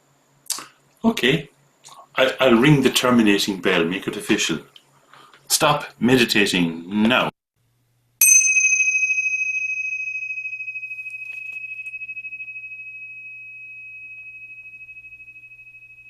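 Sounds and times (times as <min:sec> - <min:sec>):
bell ringing: 0:08.2 - 0:16.0.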